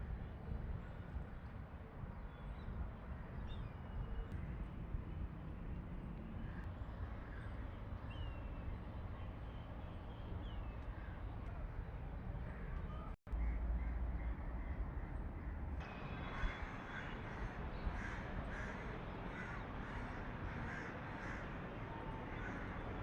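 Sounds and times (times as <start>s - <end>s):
low outdoor rumble: 6.0s - 23.0s.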